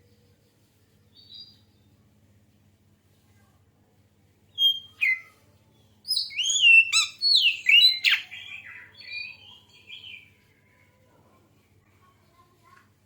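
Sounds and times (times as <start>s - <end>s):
songbird whistling and chirping: 4.6s - 5.4s, 6.1s - 10.3s.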